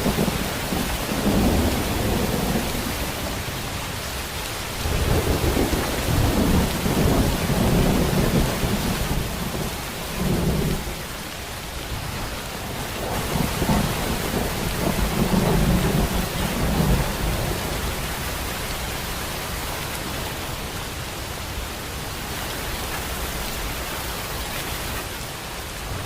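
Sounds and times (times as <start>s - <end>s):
low rumbling thunder: 0.0s - 3.6s, 4.7s - 11.0s, 12.6s - 18.1s
heavy rain: 0.0s - 26.0s.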